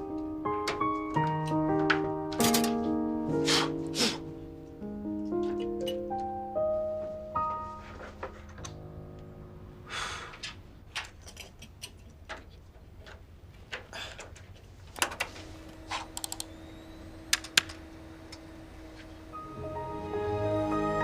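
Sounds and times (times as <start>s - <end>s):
soft background music: 0.0s - 9.9s, 17.8s - 21.0s.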